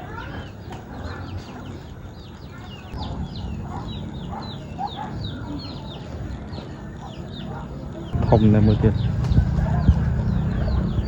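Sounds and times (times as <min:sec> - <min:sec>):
ducklings peeping: 0:00.0 - 0:11.0.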